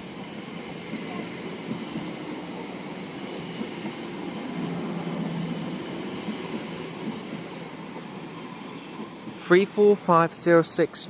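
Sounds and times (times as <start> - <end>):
train wheels and motors rumbling: 0.0 - 11.0.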